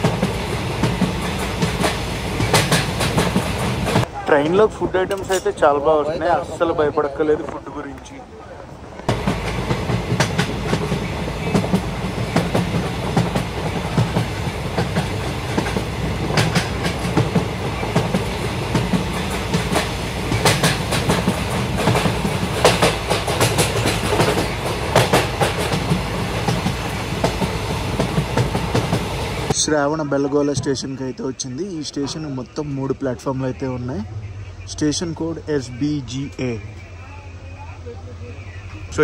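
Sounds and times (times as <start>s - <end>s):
wheels clacking over rails: 0.0s - 5.7s, 9.0s - 29.6s
train rumble: 0.0s - 39.0s.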